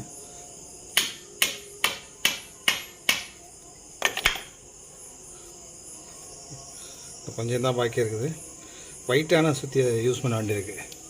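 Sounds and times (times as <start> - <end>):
hammer striking metal with ring: 0.9 - 3.4.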